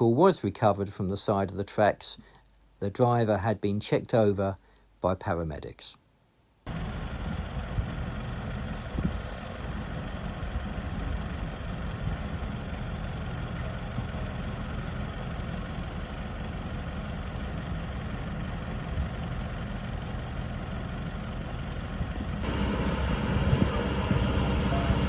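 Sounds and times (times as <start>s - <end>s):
vehicle engine idling: 6.7s - 25.0s.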